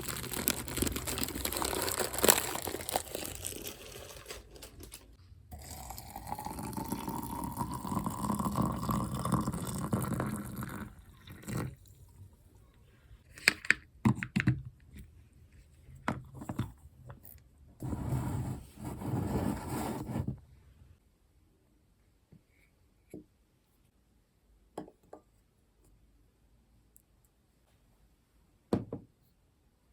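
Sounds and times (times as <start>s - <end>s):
liquid pouring into container: 5.5s - 11.8s.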